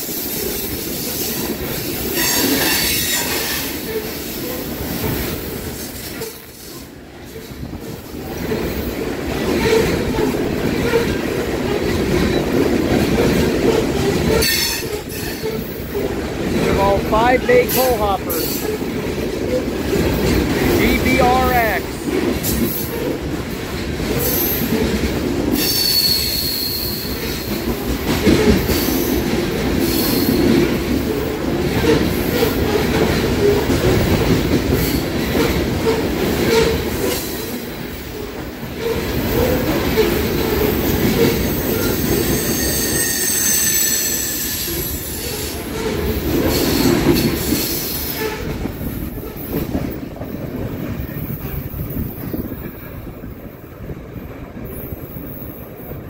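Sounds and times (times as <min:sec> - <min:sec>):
train wheels clacking on rails: 0:00.0 - 0:17.0, 0:17.7 - 0:56.0
high wheel squeals: 0:41.4 - 0:45.0.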